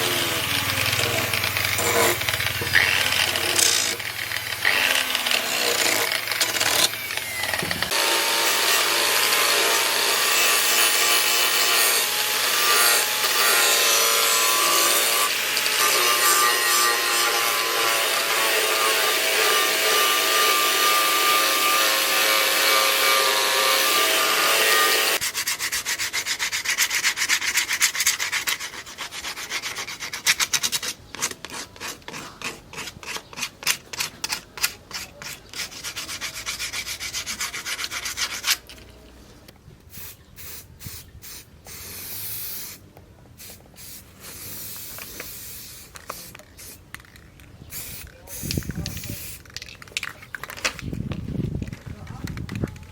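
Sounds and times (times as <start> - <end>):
hand sanding strokes on metal: 0.0 - 4.0, 11.0 - 38.7
power tool whining: 0.0 - 25.2.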